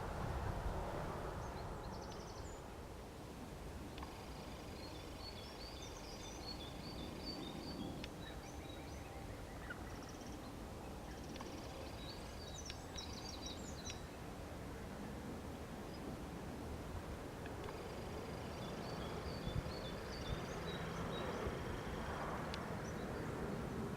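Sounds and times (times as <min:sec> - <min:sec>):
low background rumble: 0:00.0 - 0:23.9
small birds chirping: 0:01.2 - 0:02.8, 0:03.9 - 0:14.3, 0:17.4 - 0:23.8.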